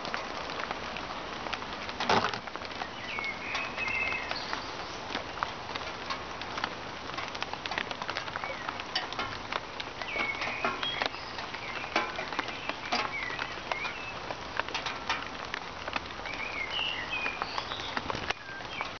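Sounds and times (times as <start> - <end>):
light rain: 0.0 - 19.0
raindrops ticking on metal can: 0.0 - 19.0
songbirds chirping and whistling: 2.6 - 5.6, 8.0 - 14.9, 16.2 - 19.0.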